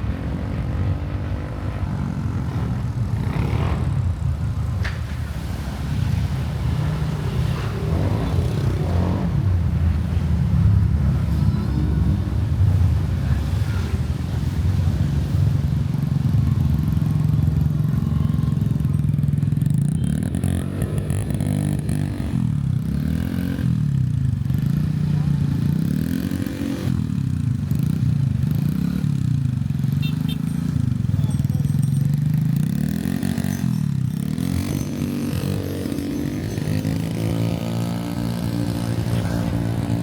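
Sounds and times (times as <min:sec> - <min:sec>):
motorcycle engine running: 0:00.0 - 0:04.8, 0:06.8 - 0:40.0.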